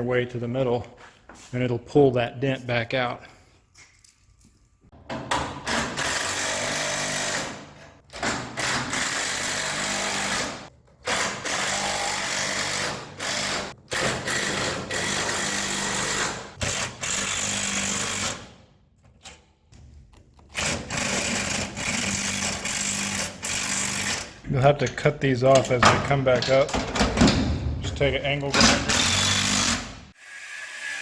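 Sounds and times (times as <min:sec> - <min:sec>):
impact wrench hammering: 0:25.6 - 0:30.1.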